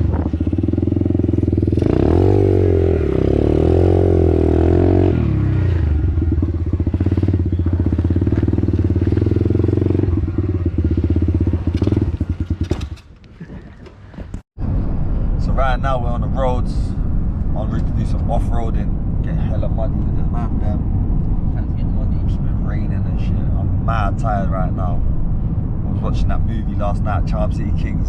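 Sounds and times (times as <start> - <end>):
pit bike engine revving and idling: 0.0 - 13.1.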